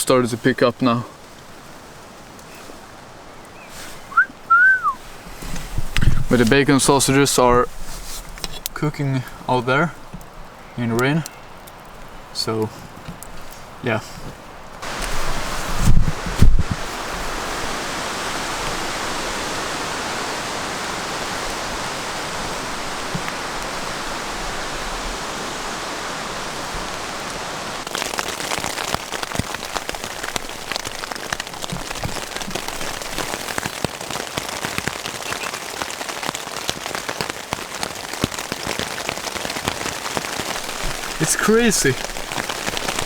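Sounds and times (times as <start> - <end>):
heavy rain hissing: 0.0 - 10.1, 13.7 - 43.0
rain drumming on a tent: 0.0 - 43.0.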